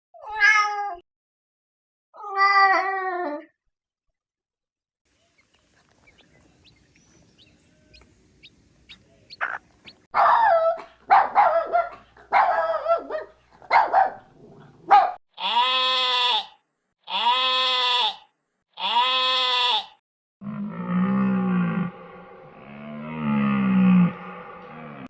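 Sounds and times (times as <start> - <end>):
faint animal clicks: 5.4 - 8.2.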